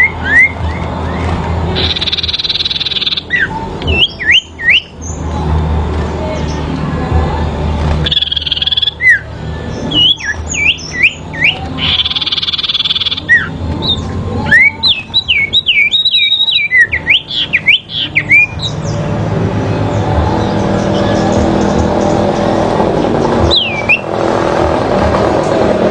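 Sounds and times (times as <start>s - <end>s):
songbird whistled calls: 0.0s - 5.2s, 8.0s - 19.0s, 23.5s - 24.1s
bird buzzy trill: 0.0s - 5.6s, 7.9s - 24.3s.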